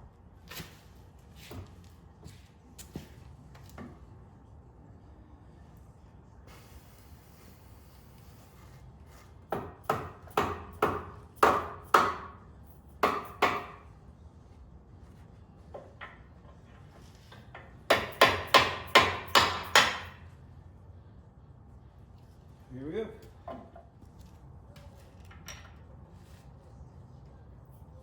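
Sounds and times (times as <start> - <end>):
mallet hammering metal pin: 17.9 - 20.2.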